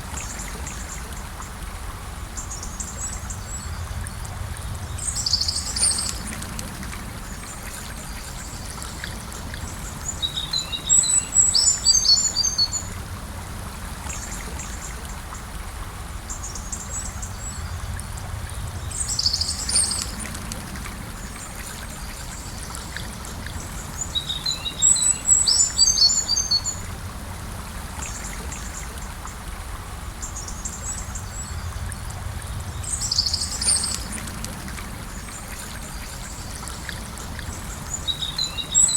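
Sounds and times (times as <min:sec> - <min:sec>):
river flowing: 0:00.0 - 0:38.9
bird chirping: 0:32.7 - 0:34.0.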